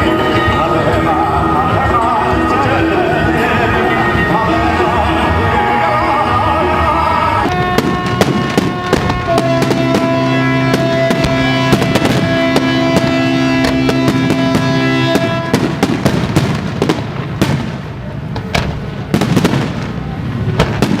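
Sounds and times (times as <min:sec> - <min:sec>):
music with long held notes: 0:00.0 - 0:16.1
fireworks cracking and banging: 0:05.5 - 0:21.0.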